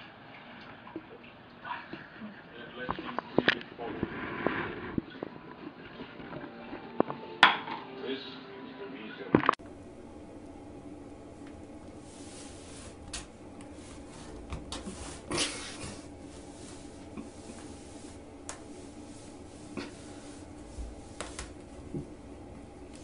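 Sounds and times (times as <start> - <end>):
rug scraping across tile floor: 3.8 - 6.3, 11.6 - 23.0
steady low hum: 9.6 - 23.0.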